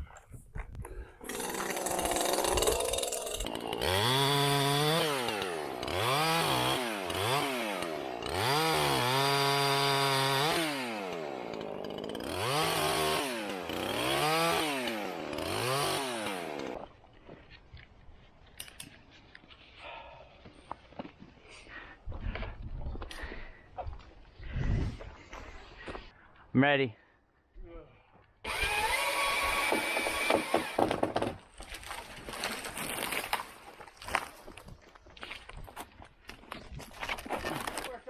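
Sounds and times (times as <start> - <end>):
chainsaw engine revving: 1.2 - 16.8, 28.5 - 30.9.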